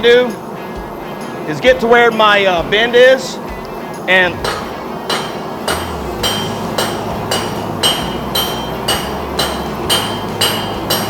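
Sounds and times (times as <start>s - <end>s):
hammer ringing on steel bar: 4.3s - 11.0s.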